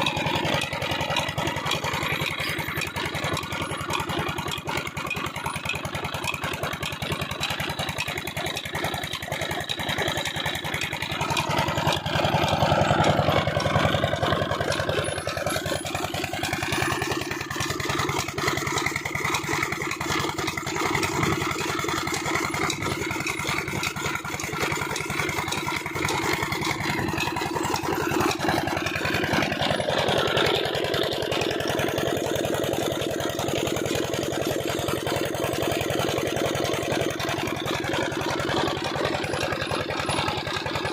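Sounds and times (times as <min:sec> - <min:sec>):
diesel engine chugging: 0:00.0 - 0:40.9.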